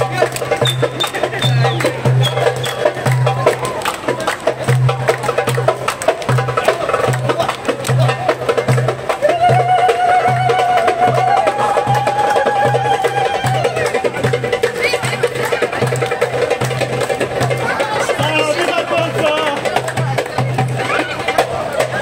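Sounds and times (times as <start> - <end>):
hand drums playing rhythm: 0.0 - 22.0
steady low drum beat: 0.0 - 22.0
held melody line: 9.1 - 15.6.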